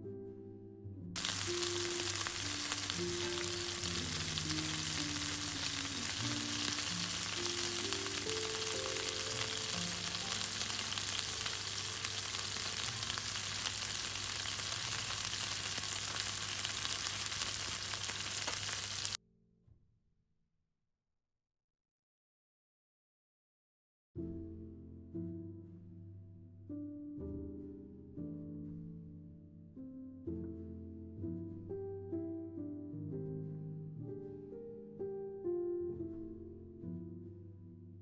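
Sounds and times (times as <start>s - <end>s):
background music: 0.0s - 16.3s
food sizzling in a pan: 1.2s - 19.2s.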